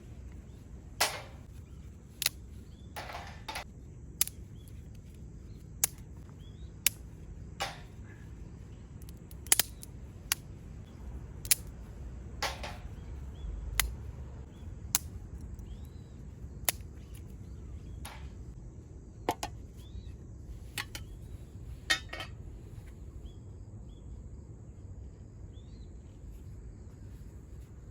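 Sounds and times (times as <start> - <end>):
low fire rumble: 0.0 - 19.8
wood fire crackling and popping: 9.0 - 11.8.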